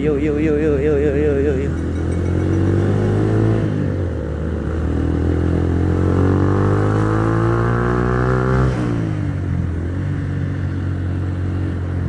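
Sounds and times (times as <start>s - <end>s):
motorcycle engine accelerating: 0.1s - 11.9s.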